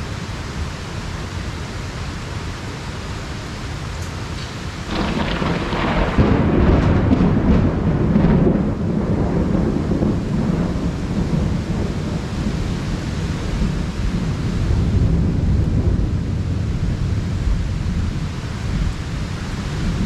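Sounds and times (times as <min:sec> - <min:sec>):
heavy rain: 0:00.0 - 0:20.0
thunder rumbling: 0:04.8 - 0:20.0.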